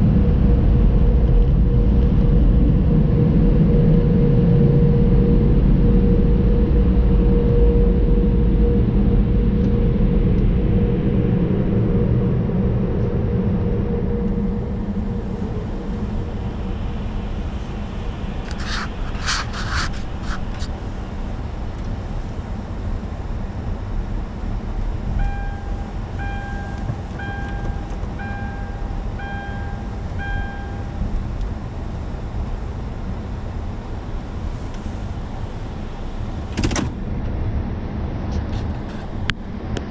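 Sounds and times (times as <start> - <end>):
humming tone: 0.0 - 19.3, 25.0 - 31.9
car wash equipment rumbling: 0.0 - 37.7
evenly spaced beeps: 25.2 - 31.0.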